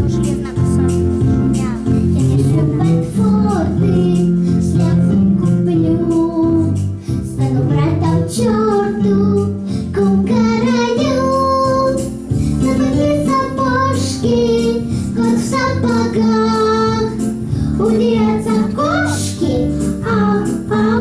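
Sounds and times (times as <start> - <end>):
instrumental accompaniment: 0.0 - 21.0
high voice singing: 18.5 - 19.5.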